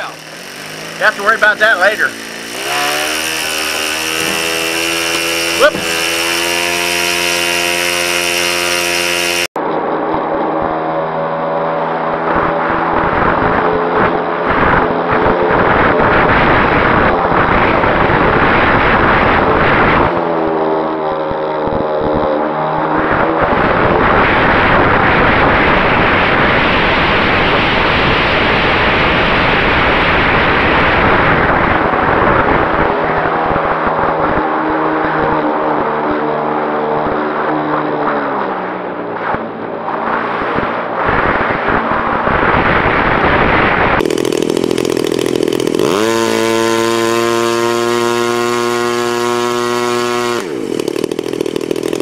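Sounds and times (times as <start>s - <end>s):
model airplane engine: 0.0s - 52.0s
wind noise on microphone: 12.0s - 37.9s, 39.2s - 44.3s.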